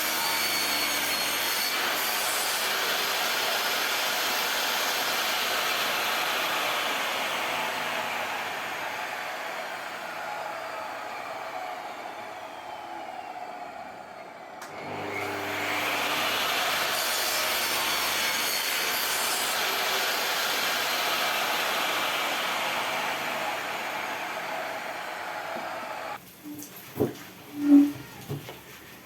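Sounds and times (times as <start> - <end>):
power tool working wood: 0.0 - 10.2, 14.6 - 26.2.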